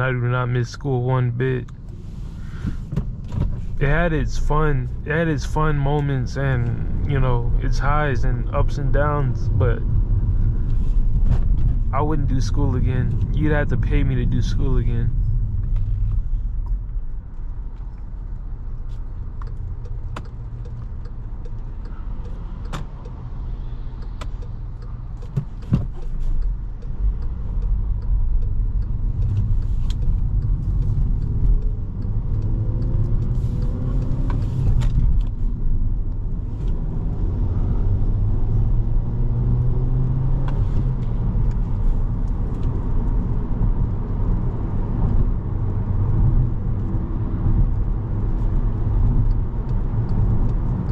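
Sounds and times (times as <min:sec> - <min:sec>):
car engine and road noise: 0:00.0 - 0:50.9
sharp ticks: 0:18.8 - 0:34.2.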